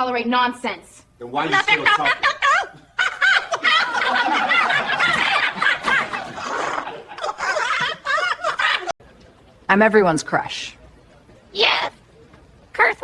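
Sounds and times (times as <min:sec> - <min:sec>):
high-pitched laughter: 0:01.9 - 0:09.0.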